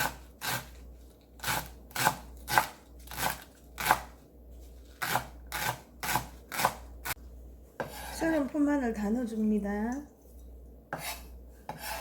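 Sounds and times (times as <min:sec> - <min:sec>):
knife chopping on cutting board: 0:01.4 - 0:04.2, 0:05.0 - 0:07.2, 0:07.8 - 0:08.2, 0:10.9 - 0:12.0.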